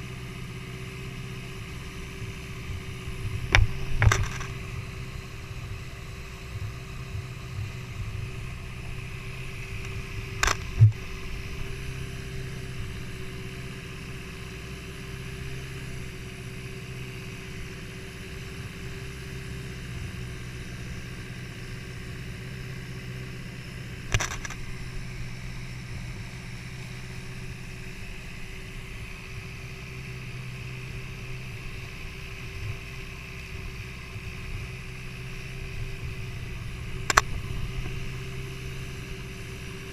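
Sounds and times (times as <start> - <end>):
boat engine humming: 0.0 - 39.9.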